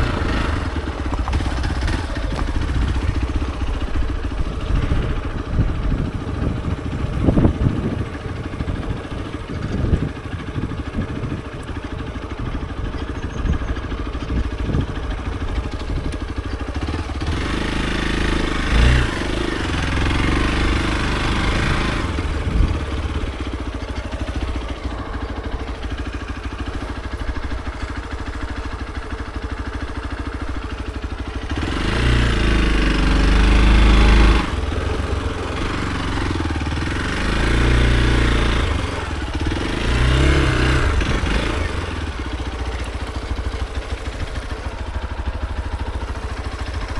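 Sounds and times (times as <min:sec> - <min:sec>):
wind rumble on microphone: 0:00.0 - 0:17.6, 0:18.3 - 0:23.5
motorcycle engine running: 0:00.0 - 0:46.9.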